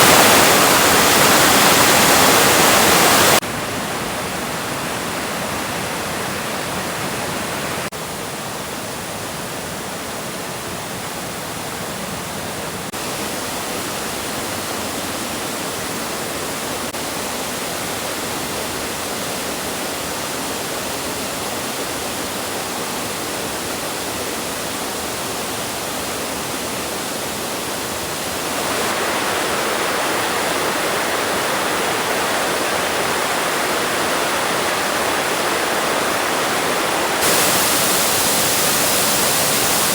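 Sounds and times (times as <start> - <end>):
waterfall rushing: 0.0 - 7.9, 24.4 - 39.9.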